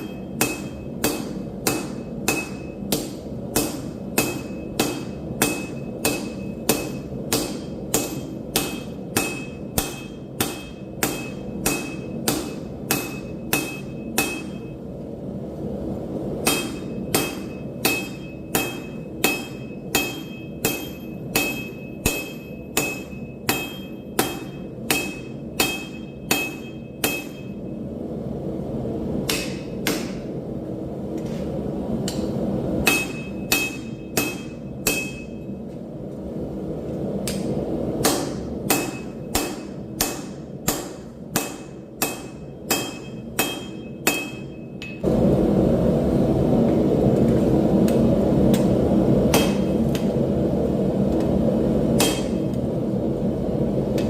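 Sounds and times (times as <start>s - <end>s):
hammer blows on steel anvil: 0.0s - 14.8s, 16.4s - 27.6s, 32.1s - 35.5s, 37.2s - 45.0s, 52.0s - 52.4s.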